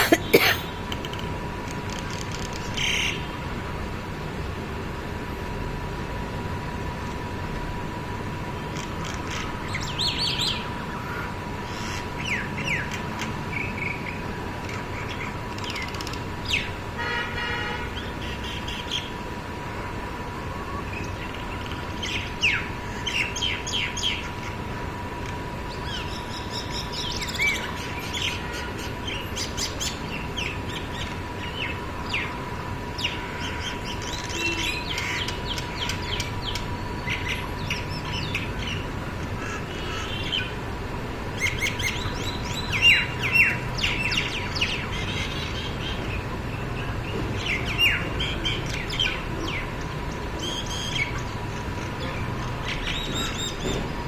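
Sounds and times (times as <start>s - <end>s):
birds chirping and squabbling: 8.8s - 16.7s, 25.7s - 32.3s, 33.0s - 40.6s, 41.4s - 53.9s.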